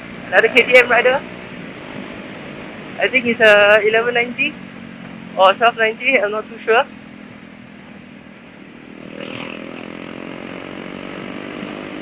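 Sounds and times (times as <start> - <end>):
motorcycle engine running: 6.8 - 12.0.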